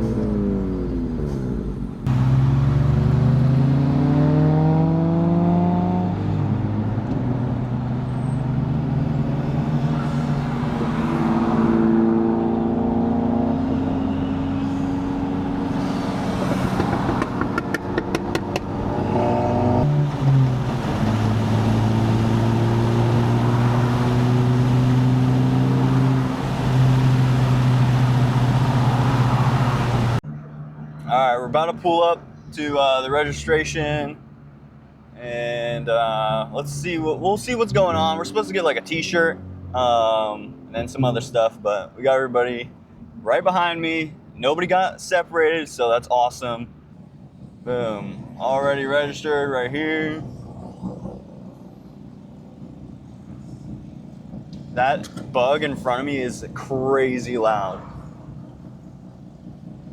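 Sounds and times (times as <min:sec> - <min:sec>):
car engine accelerating: 0:00.0 - 0:31.1, 0:46.4 - 0:59.9.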